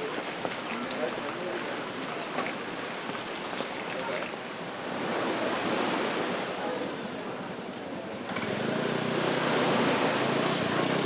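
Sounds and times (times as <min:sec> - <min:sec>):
rushing water: 0:00.0 - 0:05.3.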